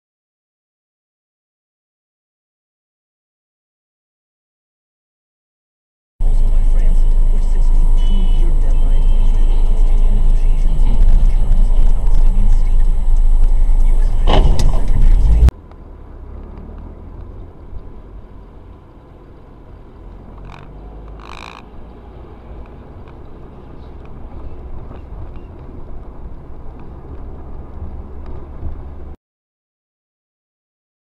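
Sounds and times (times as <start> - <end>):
car rumbling on road: 6.2 - 29.2.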